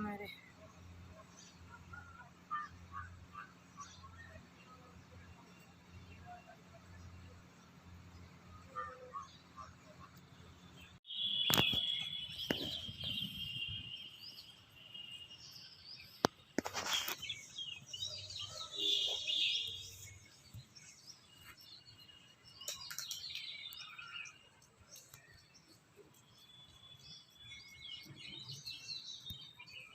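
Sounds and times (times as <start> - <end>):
small birds chirping and whistling: 10.8 - 29.9.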